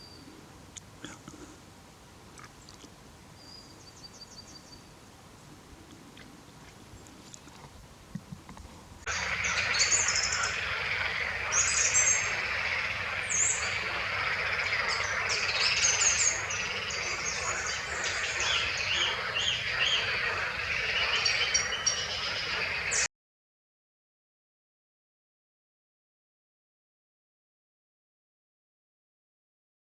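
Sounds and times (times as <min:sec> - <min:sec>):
steady background noise: 0:04.8 - 0:23.1
songbirds chirping and trilling: 0:09.1 - 0:23.1.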